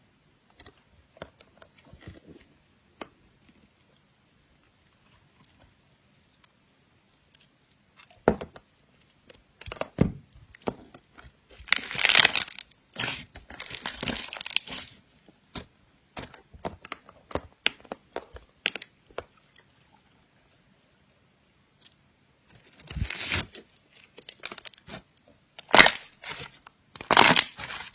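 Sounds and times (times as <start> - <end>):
slime popping and crackling: 11.6 - 15.6, 24.2 - 27.9.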